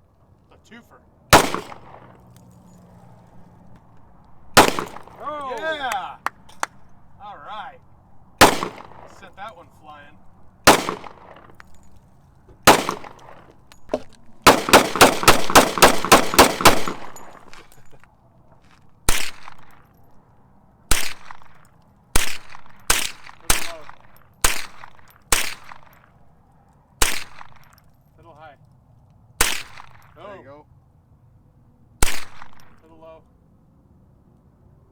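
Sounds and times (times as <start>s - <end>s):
gunshots: 1.3s - 2.4s, 4.6s - 6.7s, 8.4s - 9.5s, 10.6s - 11.8s, 12.6s - 17.8s, 19.1s - 19.8s, 20.9s - 21.6s, 22.2s - 26.1s, 27.0s - 27.8s, 29.4s - 30.2s, 32.0s - 32.9s.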